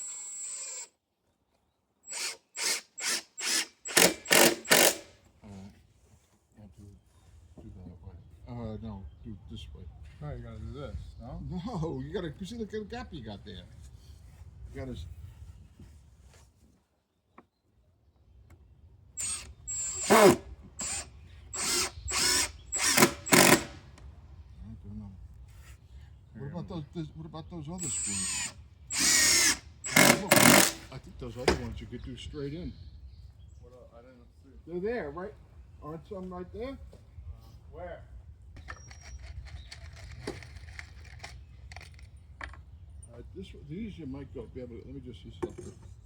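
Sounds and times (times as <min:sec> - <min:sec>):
power drill driving screws into wood: 0:00.0 - 0:00.9, 0:02.0 - 0:05.2, 0:19.2 - 0:23.9, 0:27.8 - 0:31.0
tool working wood: 0:02.1 - 0:05.1, 0:19.2 - 0:23.8, 0:27.8 - 0:30.9.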